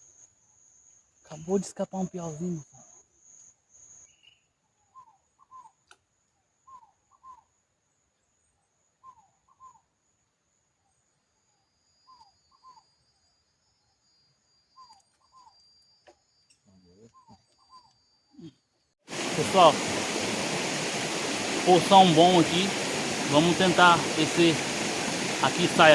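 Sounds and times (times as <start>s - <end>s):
high insect trill: 0.0s - 4.5s, 19.1s - 25.9s
faint whistled bird calls: 4.0s - 5.9s, 6.6s - 7.5s, 9.0s - 9.9s, 11.9s - 20.3s.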